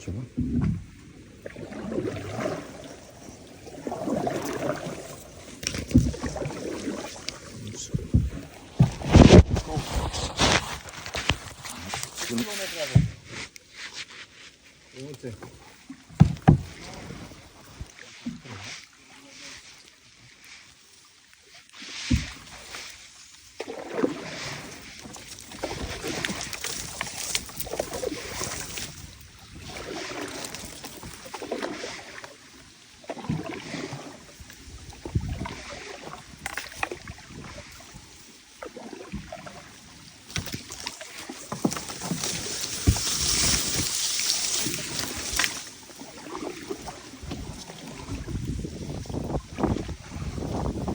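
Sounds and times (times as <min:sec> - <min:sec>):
paddle splashing water: 0:00.0 - 0:50.9
low thumps: 0:00.2 - 0:01.0, 0:07.7 - 0:10.4.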